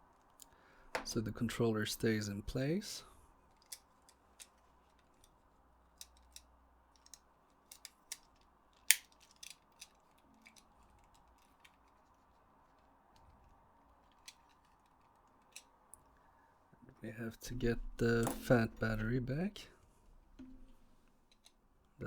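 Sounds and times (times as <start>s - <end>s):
plastic controller parts clicking: 3.5s - 5.4s, 6.0s - 16.0s.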